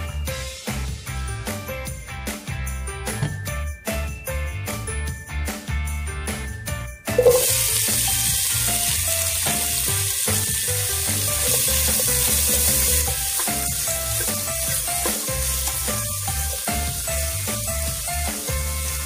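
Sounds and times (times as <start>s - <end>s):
background music with bass line: 0.0s - 19.0s
onion and garlic sizzling in a pot: 7.2s - 19.0s.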